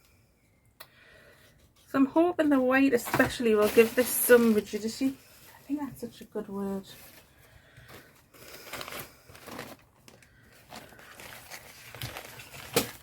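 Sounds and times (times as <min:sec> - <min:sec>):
thin paper rustling: 0:03.0 - 0:05.1, 0:07.9 - 0:13.0.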